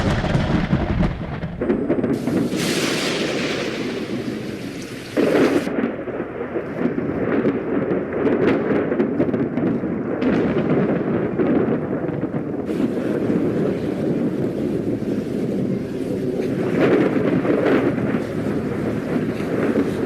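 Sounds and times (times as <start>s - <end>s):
rain falling: 0.0s - 8.0s, 12.6s - 20.0s
thunder rumbling: 0.0s - 20.0s.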